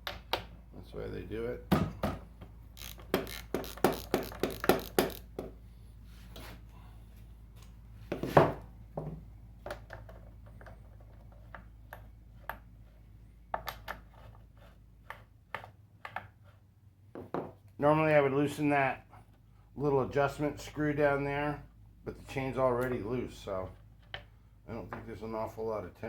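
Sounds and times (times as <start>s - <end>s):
wrench clicking on metal: 2.8s - 5.3s.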